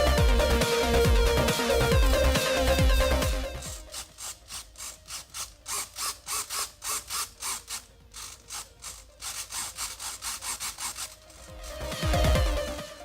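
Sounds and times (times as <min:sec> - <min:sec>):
hand tool scraping: 0:03.6 - 0:12.6.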